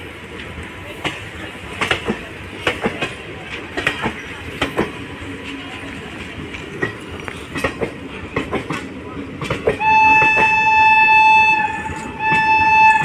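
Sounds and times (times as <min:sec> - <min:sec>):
train rumble: 0:00.0 - 0:13.0
wheels clacking over rail joints: 0:00.3 - 0:10.7.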